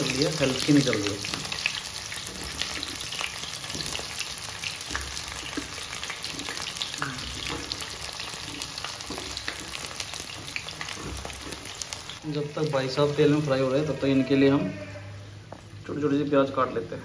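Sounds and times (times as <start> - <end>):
fruit pieces sizzling in hot oil: 0.0 - 14.2.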